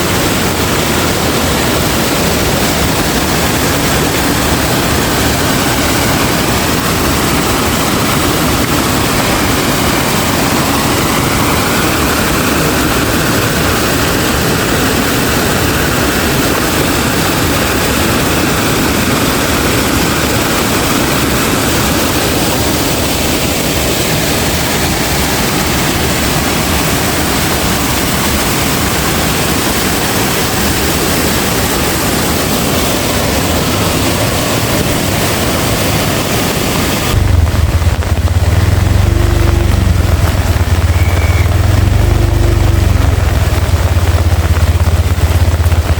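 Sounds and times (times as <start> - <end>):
heavy rain pouring: 0.0 - 45.9
strong wind: 0.0 - 45.9.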